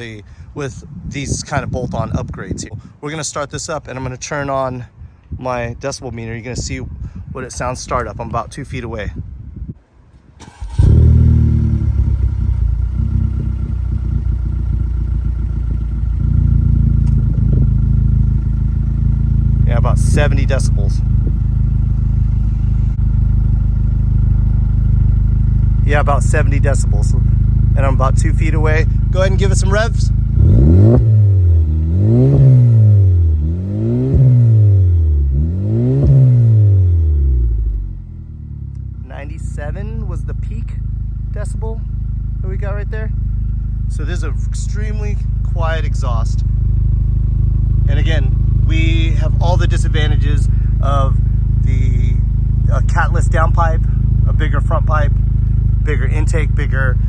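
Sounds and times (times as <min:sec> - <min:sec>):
car engine idling: 0:10.1 - 0:57.0.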